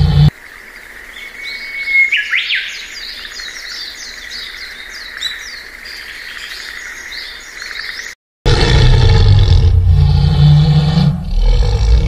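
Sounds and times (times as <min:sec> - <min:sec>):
birds chirping: 0:00.0 - 0:08.2
sweeping bird call: 0:01.1 - 0:08.2.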